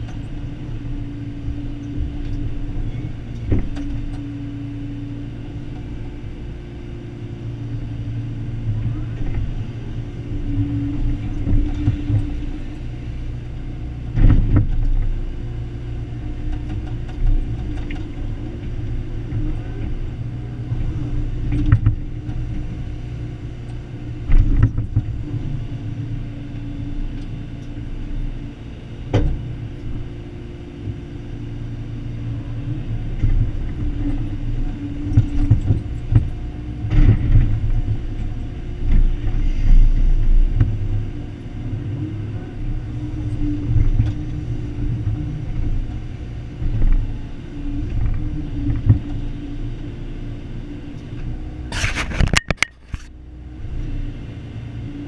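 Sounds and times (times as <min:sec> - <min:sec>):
excavator diesel engine: 0:00.0 - 0:55.0
machine knocks and clanks: 0:14.1 - 0:15.1, 0:35.0 - 0:38.3.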